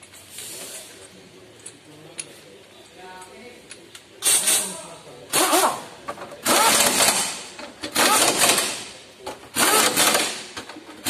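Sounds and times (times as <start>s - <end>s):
pneumatic impact wrench: 4.2s - 4.7s, 5.3s - 11.0s.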